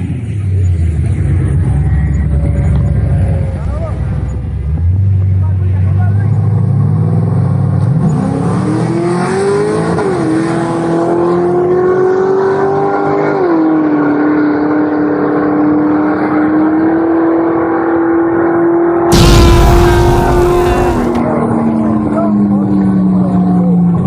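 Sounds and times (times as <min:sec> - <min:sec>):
loud crash: 0:19.1 - 0:21.2
vehicle engine revving: 0:19.1 - 0:21.2.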